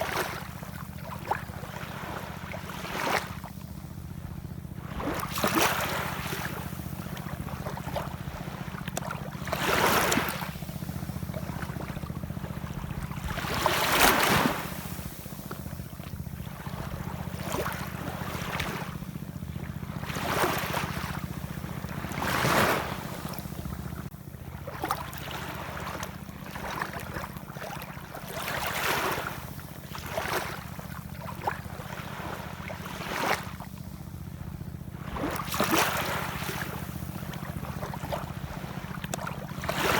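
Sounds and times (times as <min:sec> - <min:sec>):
steady low rumble: 0:03.4 - 0:28.3
ocean waves washing in: 0:04.8 - 0:39.9.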